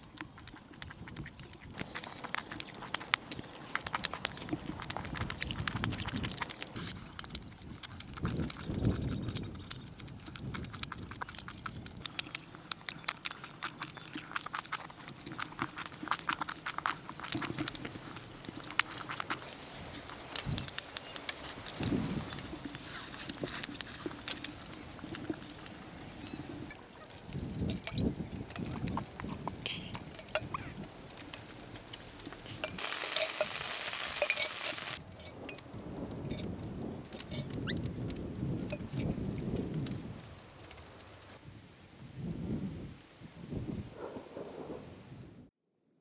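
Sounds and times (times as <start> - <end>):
people chewing meat: 0.0 - 33.6.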